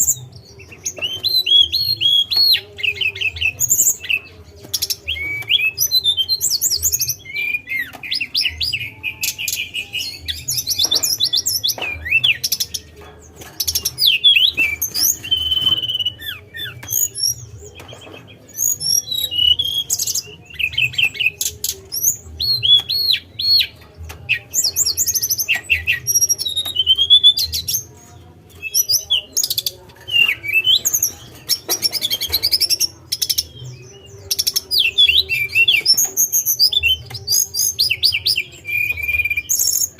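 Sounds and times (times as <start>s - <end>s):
bird singing whistled phrases: 14.0s - 17.4s.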